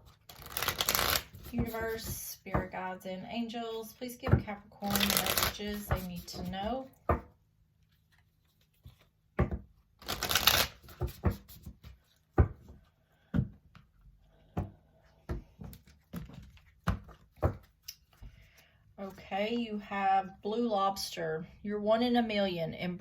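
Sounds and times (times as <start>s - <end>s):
cards riffling: 0.2s - 1.4s, 4.9s - 5.9s, 10.0s - 11.1s
cards tapping and flicking: 0.3s - 2.1s, 4.9s - 6.5s, 9.4s - 11.8s.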